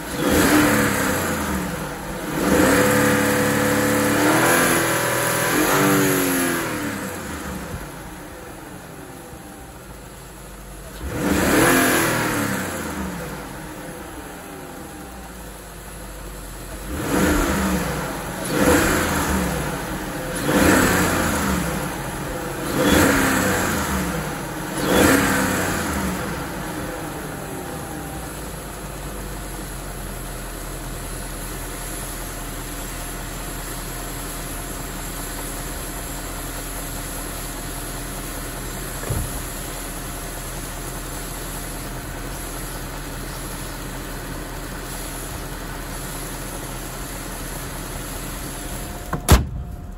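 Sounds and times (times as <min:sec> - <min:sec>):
car engine revving: 0:00.0 - 0:08.9, 0:10.9 - 0:15.0, 0:16.7 - 0:28.5
car engine idling: 0:00.0 - 0:49.9.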